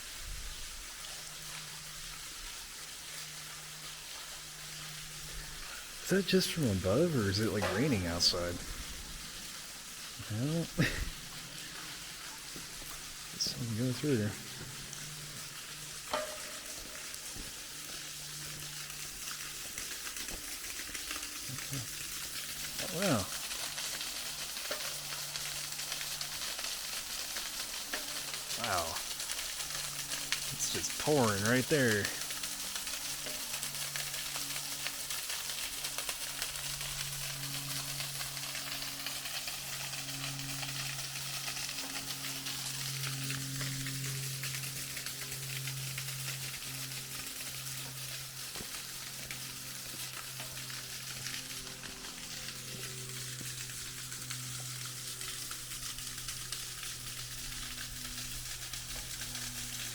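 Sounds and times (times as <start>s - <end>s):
water pouring and splashing: 0.0s - 59.9s
patter of drops: 5.4s - 9.2s, 10.9s - 43.8s.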